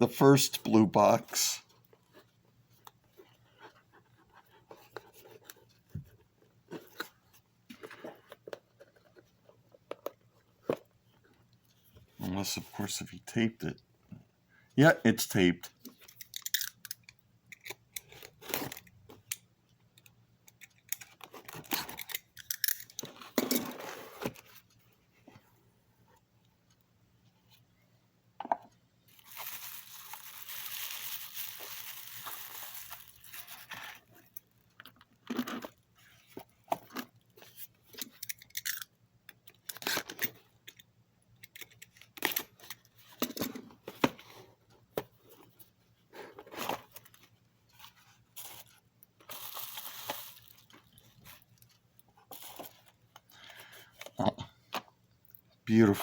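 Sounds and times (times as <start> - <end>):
packing tape tearing: 29.1 - 34.0, 49.3 - 50.6
wrapping crinkling: 29.1 - 34.6, 46.7 - 53.5.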